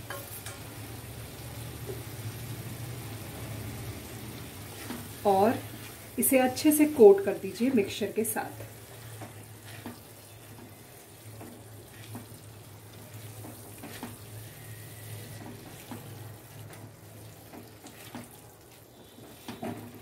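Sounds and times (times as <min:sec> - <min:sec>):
food sizzling in a metal pan: 0:00.0 - 0:20.0
spatula scraping and knocking pan: 0:13.1 - 0:14.4.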